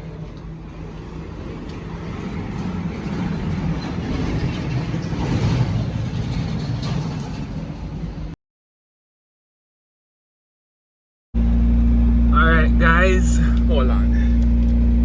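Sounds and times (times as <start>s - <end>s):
road noise: 0.0s - 8.4s, 11.4s - 15.0s
vehicle engine running: 11.4s - 15.0s.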